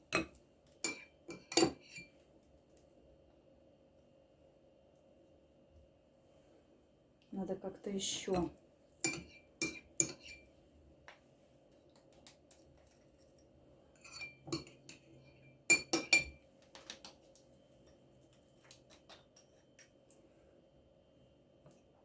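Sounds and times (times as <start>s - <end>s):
utensil clinking against glass dish: 0.1s - 2.1s, 8.4s - 10.4s, 14.0s - 16.4s.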